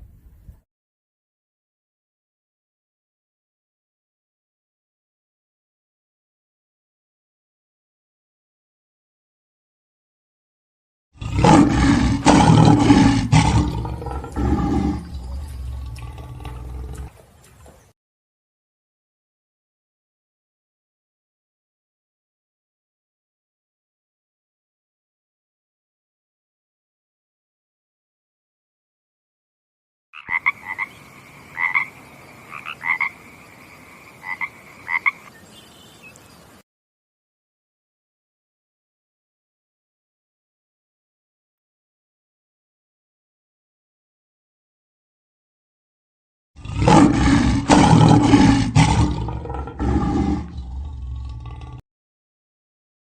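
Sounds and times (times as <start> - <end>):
lion roaring: 11.2 - 17.2, 46.6 - 51.8.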